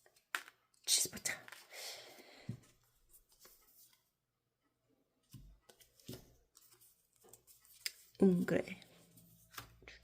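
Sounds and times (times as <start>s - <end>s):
paper and card rustling: 2.9s - 4.1s, 5.6s - 10.0s.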